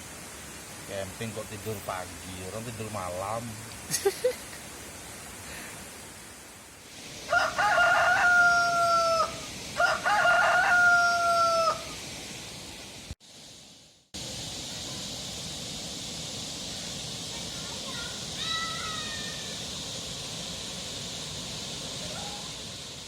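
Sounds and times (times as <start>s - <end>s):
rooster crowing: 7.2s - 12.0s.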